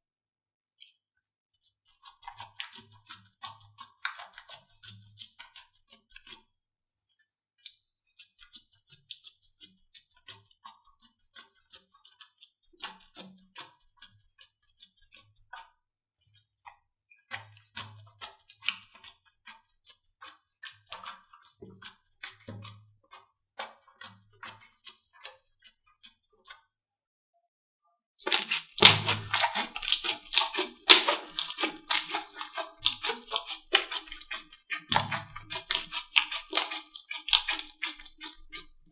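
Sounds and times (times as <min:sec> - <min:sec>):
loud slime crackling: 0:28.2 - 0:38.9
slime squeezed by hand: 0:28.2 - 0:38.9.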